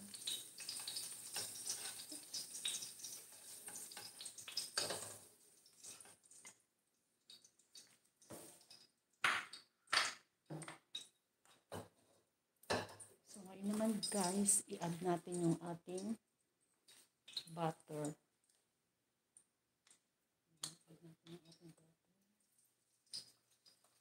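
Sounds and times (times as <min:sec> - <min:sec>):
ticks and taps from pan: 0:00.0 - 0:05.2
food sizzling in hot oil: 0:00.0 - 0:06.6, 0:12.7 - 0:16.1
wooden spatula scraping wok: 0:00.7 - 0:05.2.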